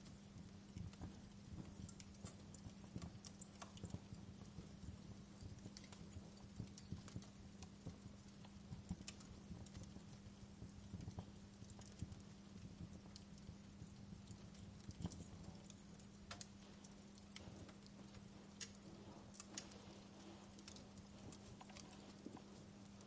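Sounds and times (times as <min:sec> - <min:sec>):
low steady rumble: 0:00.0 - 0:23.0
wood fire crackling: 0:00.0 - 0:23.0.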